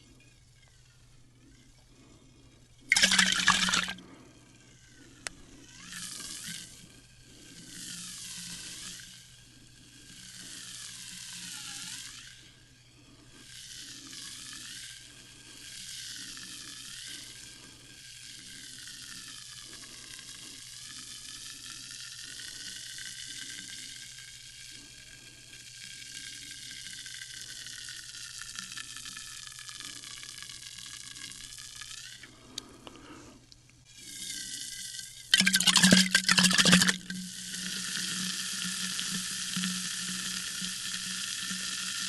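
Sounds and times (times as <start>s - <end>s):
sparkling water fizzing: 2.9s - 4.0s, 35.4s - 37.1s.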